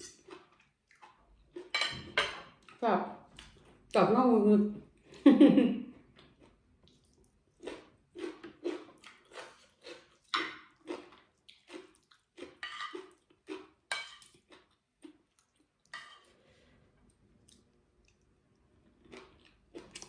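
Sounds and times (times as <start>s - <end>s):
cutlery scraping on plate: 0.0s - 0.5s, 1.6s - 2.6s, 12.6s - 13.1s, 13.9s - 14.4s, 15.9s - 16.3s.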